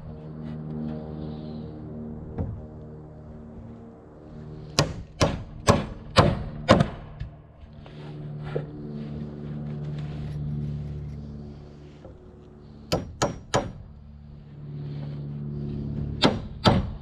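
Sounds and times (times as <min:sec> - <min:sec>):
engine humming: 0:00.0 - 0:17.0
hammer blows: 0:04.7 - 0:08.7, 0:12.0 - 0:14.0, 0:15.0 - 0:17.0.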